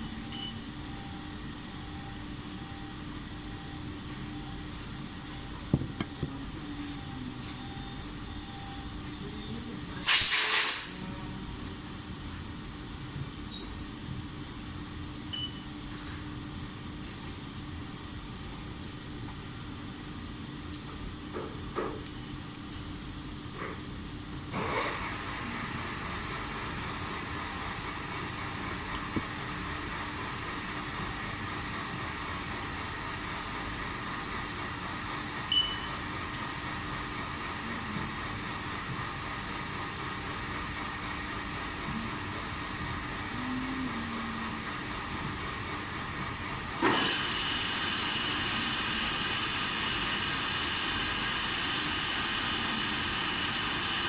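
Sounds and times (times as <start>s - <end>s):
machine hum with hiss: 0.0s - 54.0s.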